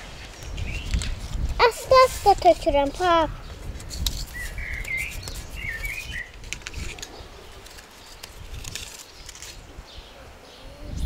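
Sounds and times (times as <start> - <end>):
songbird warbling: 4.3 - 6.4.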